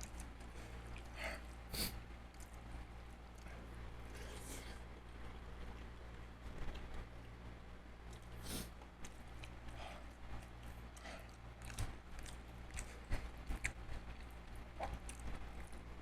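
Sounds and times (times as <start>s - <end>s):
steady low hum: 0.0s - 16.0s
chewing and biting seafood: 8.1s - 16.0s.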